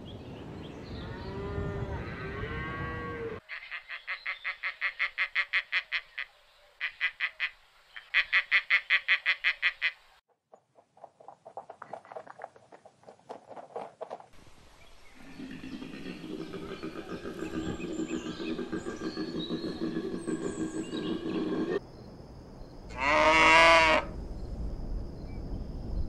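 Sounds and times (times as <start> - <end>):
bird rapid repeated calls: 3.5 - 10.2, 15.1 - 21.8
cattle mooing: 23.0 - 24.0.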